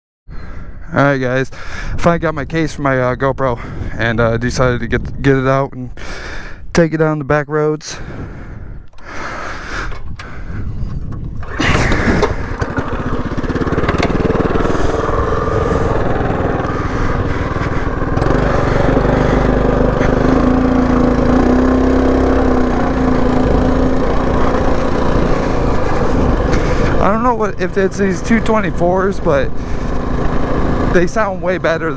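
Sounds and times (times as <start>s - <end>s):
mini bike engine running: 11.3s - 31.9s.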